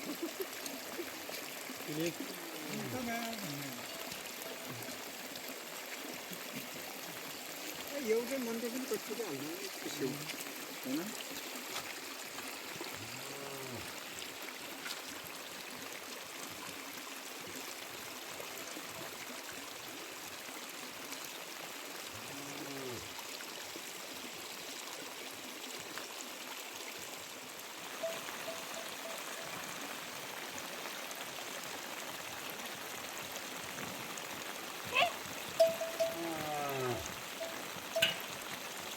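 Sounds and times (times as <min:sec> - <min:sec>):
heavy rain: 0:00.0 - 0:06.9, 0:07.5 - 0:11.9, 0:12.9 - 0:14.0, 0:27.7 - 0:38.9
running water: 0:00.0 - 0:38.9.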